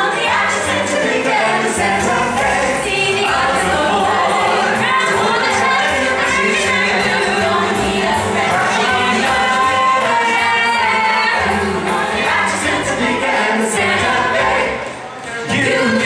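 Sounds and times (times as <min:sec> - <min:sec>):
vocal ensemble singing in harmony: 0:00.0 - 0:16.0.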